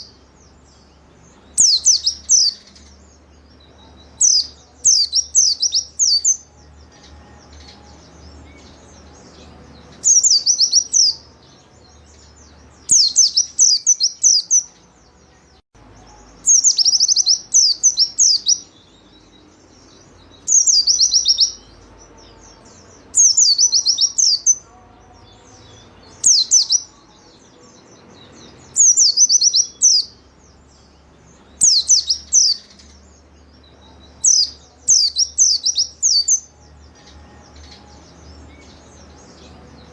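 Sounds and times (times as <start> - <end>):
bird singing high falling notes: 0.0 - 39.9.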